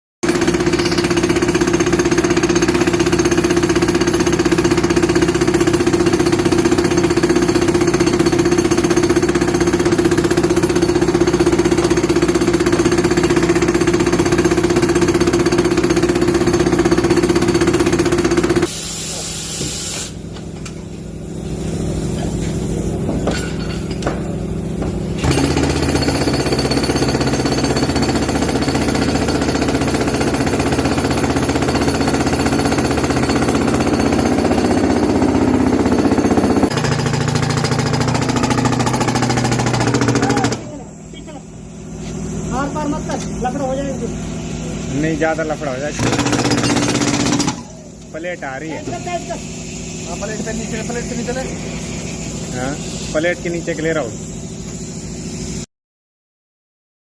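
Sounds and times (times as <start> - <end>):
hydraulic breaker hammering wall: 0.2 - 18.7, 23.1 - 40.9, 45.7 - 48.1
tractor engine running: 24.2 - 48.0.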